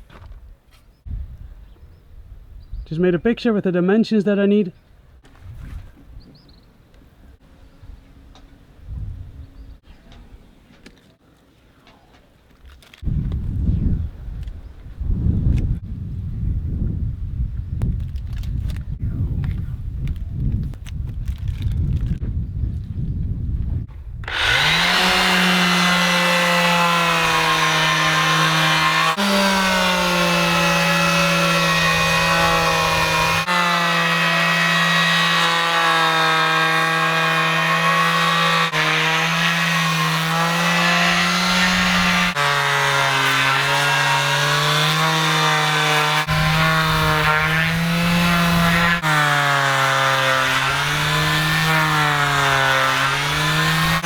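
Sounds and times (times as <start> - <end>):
power sander motor whine: 24.2 - 54.0.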